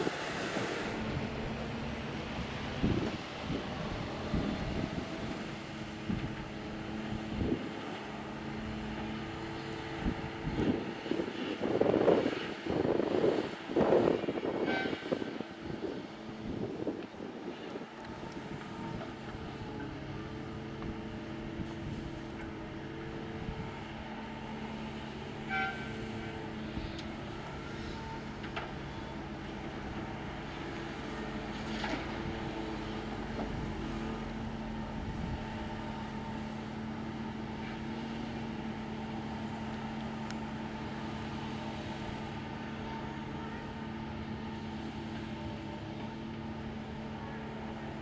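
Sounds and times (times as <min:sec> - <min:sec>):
heavy diesel engines running: 0:00.0 - 0:48.0.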